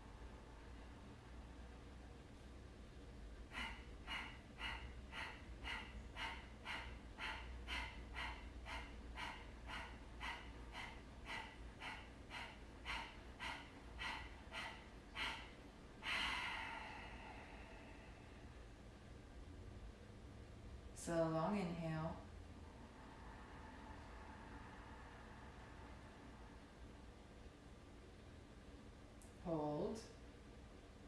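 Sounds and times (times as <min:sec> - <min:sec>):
sharp forceful exhales: 0:03.5 - 0:18.6.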